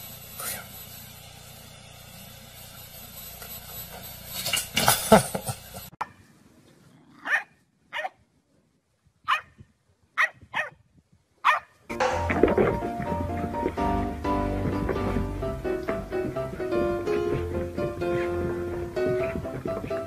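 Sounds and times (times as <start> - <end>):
puppy barking high yaps: 7.2 - 8.2, 9.3 - 9.5, 10.2 - 10.8, 11.4 - 11.7.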